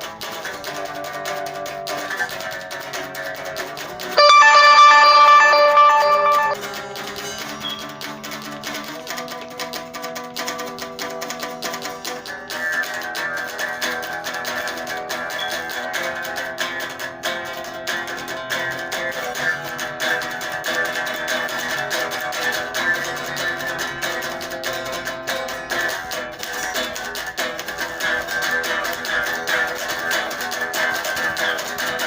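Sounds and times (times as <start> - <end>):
guitar picking: 4.2 - 6.6.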